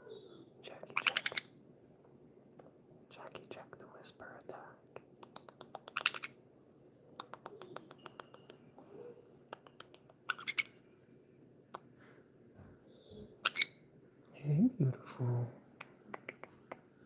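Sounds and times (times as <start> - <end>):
parrot raspy chatter: 0.8 - 1.5, 5.3 - 6.4, 9.5 - 10.8, 13.4 - 13.8
parrot clicking: 5.2 - 6.3, 7.2 - 8.6, 9.5 - 10.7.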